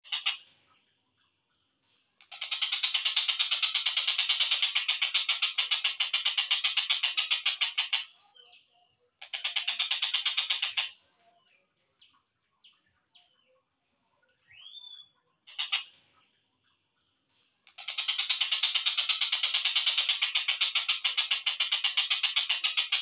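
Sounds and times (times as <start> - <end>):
kingfisher harsh repeated calls: 0.0 - 0.4, 2.3 - 8.1, 9.2 - 11.0, 15.5 - 15.9
faint bird chirps: 7.0 - 21.0.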